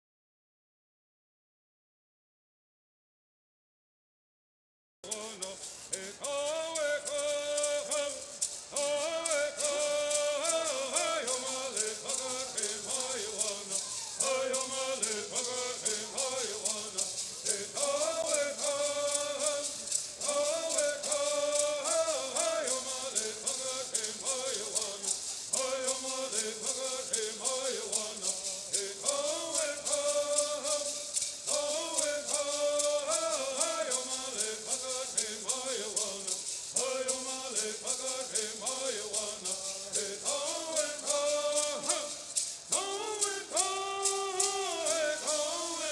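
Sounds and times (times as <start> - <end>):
gourd rattles shaking: 5.1 - 45.9
group chanting: 5.1 - 45.9.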